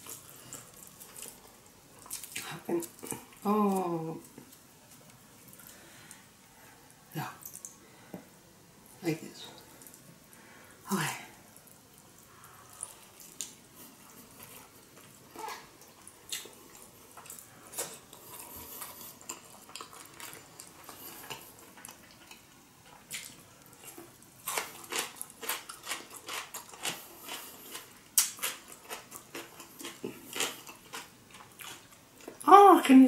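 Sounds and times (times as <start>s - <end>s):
wet chewing clicks and smacks: 15.8s - 32.4s.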